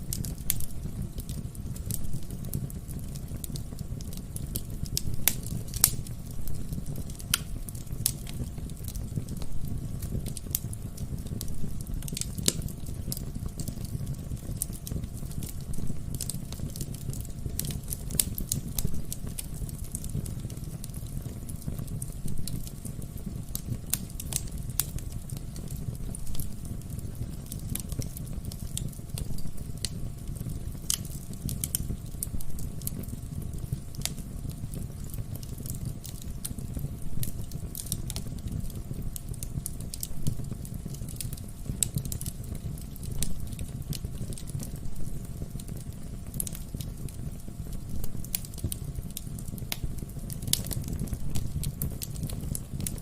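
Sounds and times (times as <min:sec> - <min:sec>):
burning logs crackling and popping: 0:00.0 - 0:53.0
fire flames rumbling: 0:00.0 - 0:53.0.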